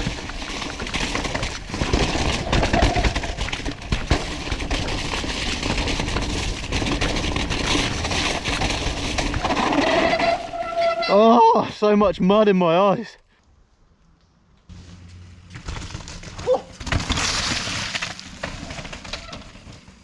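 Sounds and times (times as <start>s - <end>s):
bike knocking and rattling: 0.0s - 11.1s, 14.6s - 20.0s
tyres running through mud: 0.0s - 11.3s.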